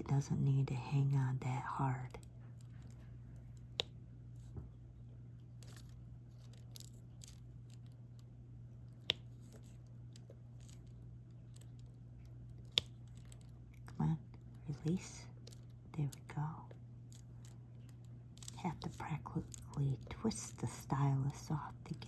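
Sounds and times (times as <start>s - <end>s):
steady low hum: 0.0s - 22.0s
stylus clicking and scratching: 8.9s - 22.0s.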